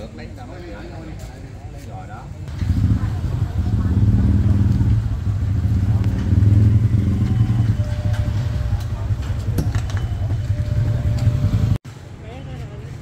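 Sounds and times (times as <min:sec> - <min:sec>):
motorcycle engine idling: 0:02.5 - 0:11.8.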